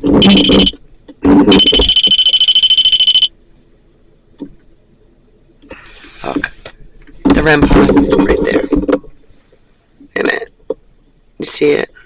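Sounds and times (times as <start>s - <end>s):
pulsing electronic alarm tone: 0.1s - 0.8s, 1.5s - 3.3s.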